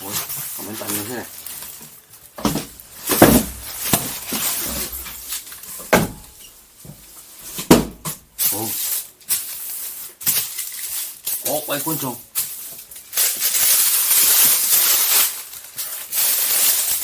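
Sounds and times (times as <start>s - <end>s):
packaging rustling: 0.0s - 7.6s, 8.4s - 17.0s
sharp knocks and clacks: 5.8s - 8.2s.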